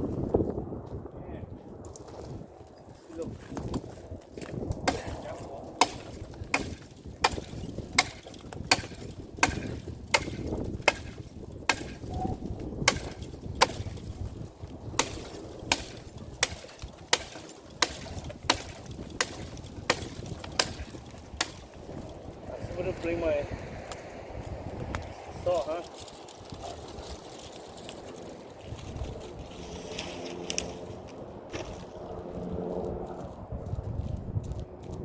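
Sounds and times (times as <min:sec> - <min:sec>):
pruning shears snipping: 0:04.8 - 0:12.2, 0:12.8 - 0:14.2, 0:15.0 - 0:22.1.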